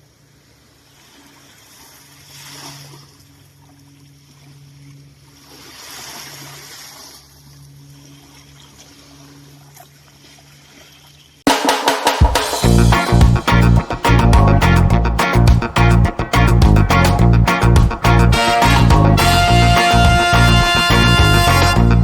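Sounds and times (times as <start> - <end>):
small waves washing on beach: 0.5 - 11.3.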